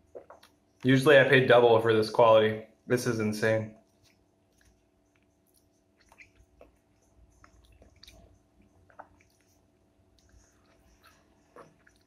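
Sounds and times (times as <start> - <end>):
wet chewing: 0.0 - 0.9, 3.8 - 12.0
faint steady hum: 0.0 - 12.0.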